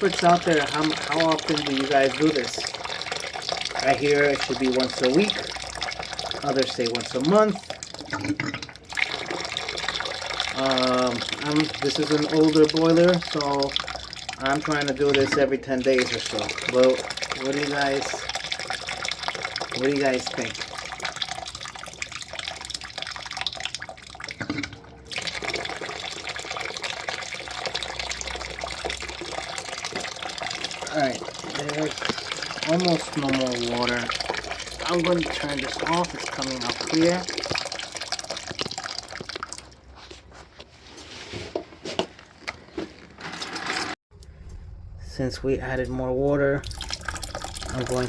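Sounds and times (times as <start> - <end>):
hot water running from valve: 0.0 - 8.2, 8.8 - 24.2, 25.1 - 39.5, 45.4 - 48.0.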